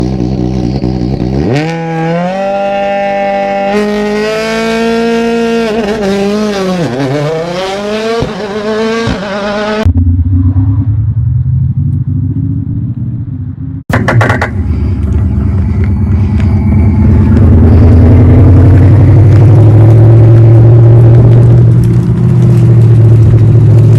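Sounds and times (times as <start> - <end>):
simulated sports car exhaust revving: 0.0 - 23.9
deep rumbling idle: 14.0 - 23.9.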